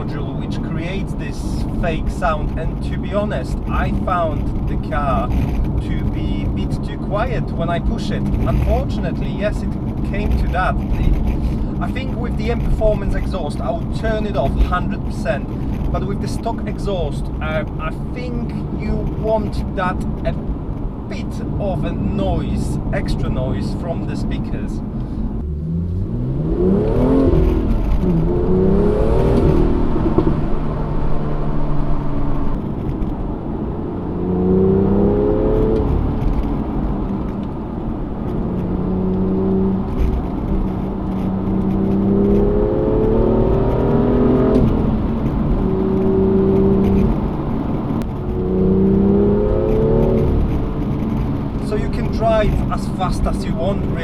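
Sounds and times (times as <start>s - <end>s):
car engine revving through gear shifts: 0.0s - 23.8s, 24.8s - 54.0s.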